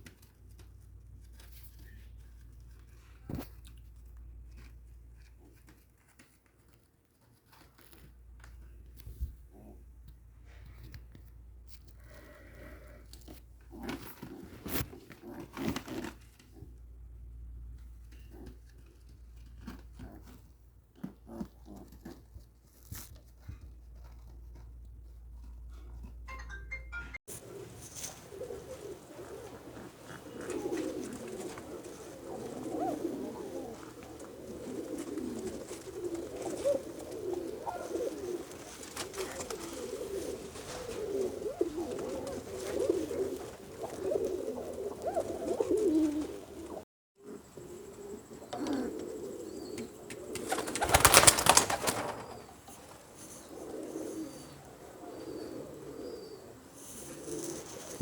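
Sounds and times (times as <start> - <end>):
pigeons cooing: 12.1 - 16.8, 17.8 - 20.4, 21.0 - 22.3, 27.3 - 58.0.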